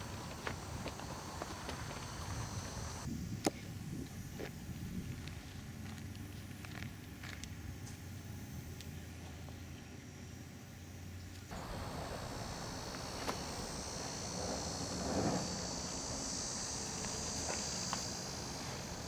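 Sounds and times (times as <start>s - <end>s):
insects chirring: 0.0s - 5.2s, 9.7s - 19.0s
rustle: 11.2s - 19.0s.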